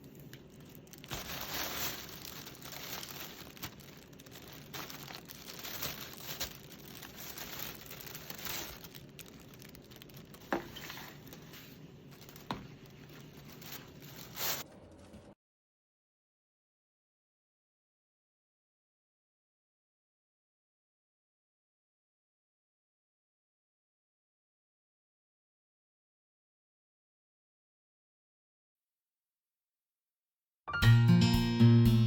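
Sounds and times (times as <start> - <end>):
packaging crinkling: 0.0 - 15.1.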